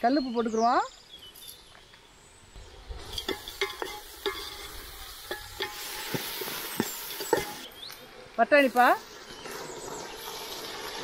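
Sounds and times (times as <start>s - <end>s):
ladle knocking and scraping pot: 3.0s - 7.7s
food sizzling in a pot: 3.0s - 7.8s, 8.6s - 11.0s.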